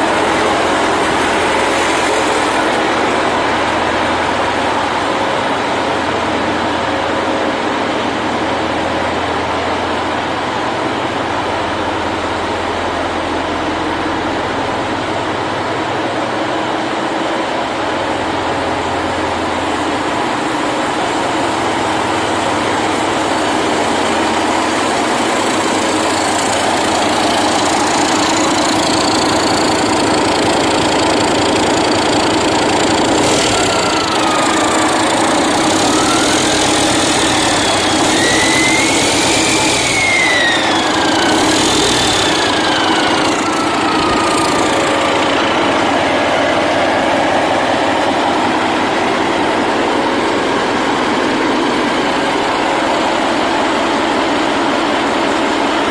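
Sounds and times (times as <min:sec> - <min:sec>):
whining tone: 0:20.8 - 0:49.6
motor running: 0:23.0 - 0:46.3.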